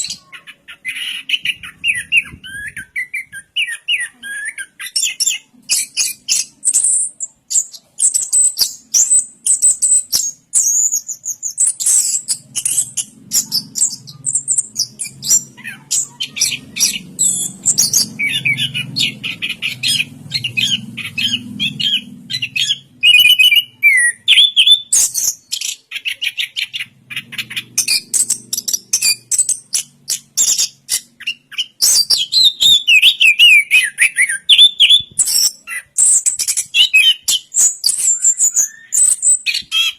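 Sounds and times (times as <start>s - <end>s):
thrush singing: 11.7s - 24.8s.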